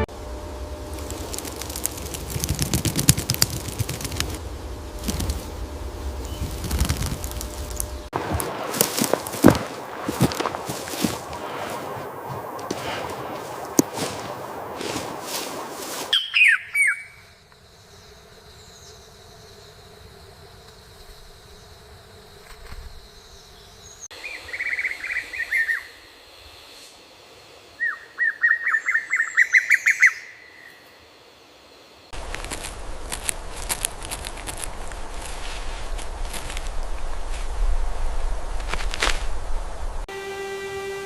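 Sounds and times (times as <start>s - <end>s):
steady rustling noise: 0.0s - 16.2s, 32.1s - 40.1s
bird chirping: 6.1s - 8.1s, 16.1s - 19.2s, 27.8s - 30.8s.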